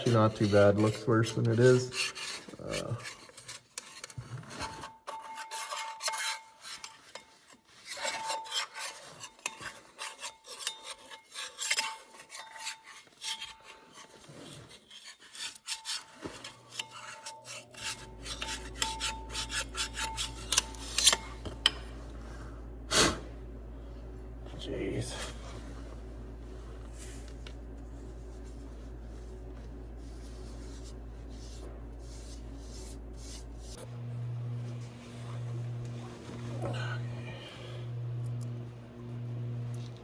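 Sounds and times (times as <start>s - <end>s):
hands and tools scraping and clicking: 0.0s - 22.0s
low steady hum: 16.6s - 40.0s.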